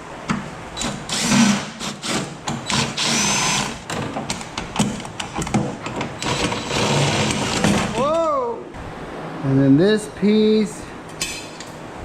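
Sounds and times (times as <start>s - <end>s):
handheld power tool running: 0.8s - 3.8s.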